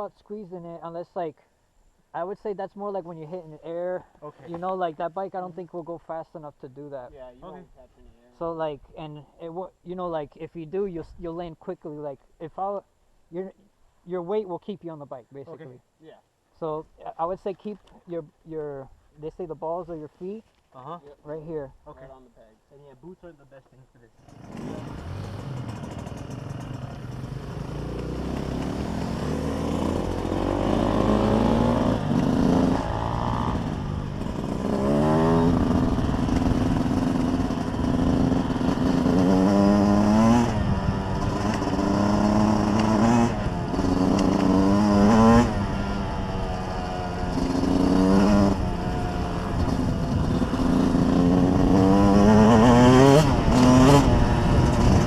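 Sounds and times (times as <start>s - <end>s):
dirt bike engine accelerating: 24.2s - 55.0s.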